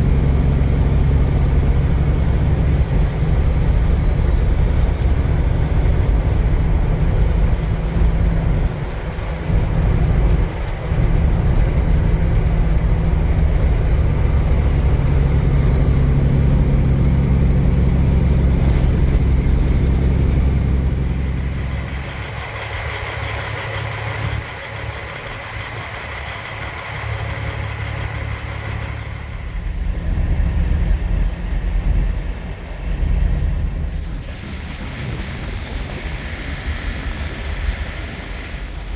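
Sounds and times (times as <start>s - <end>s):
thin whine rising in pitch: 0.0s - 24.5s
road and wind noise: 0.0s - 38.9s
truck diesel engine running: 0.0s - 38.9s.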